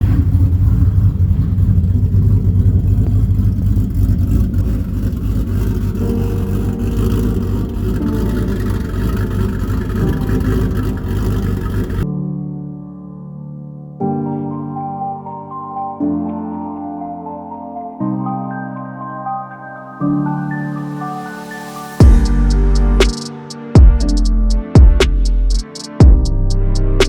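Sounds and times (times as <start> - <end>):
vehicle engine low rumble: 0.0 - 12.0, 22.0 - 23.1, 24.0 - 27.0
keyboard music: 5.9 - 27.0.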